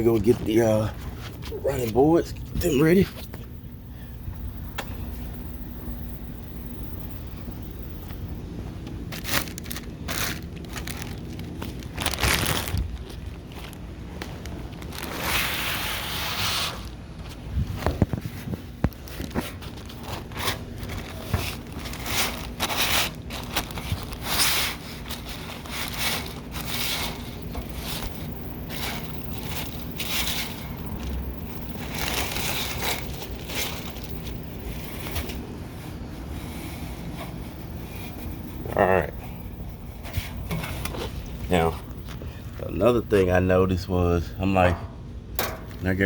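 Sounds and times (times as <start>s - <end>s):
packaging rustling and crinkling: 9.0s - 17.0s, 17.6s - 35.5s.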